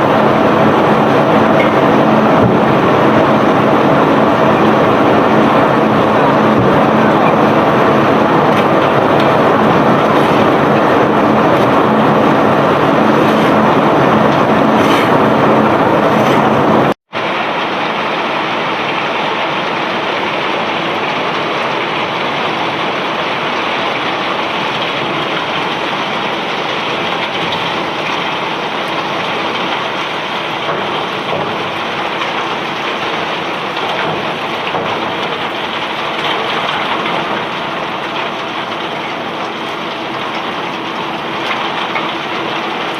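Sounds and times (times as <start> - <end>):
engine hum: 0.0 - 17.7.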